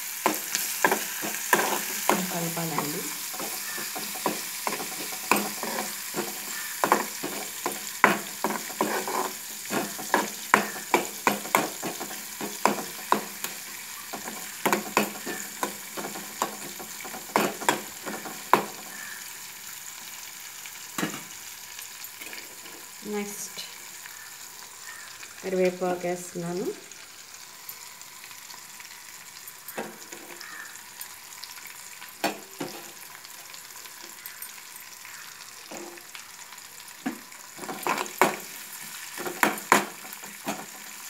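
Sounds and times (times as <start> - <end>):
onions sizzling in hot oil: 0.0 - 41.0
metal spoon scraping a pan: 0.2 - 19.1, 29.7 - 30.6, 32.2 - 33.0, 37.6 - 41.0.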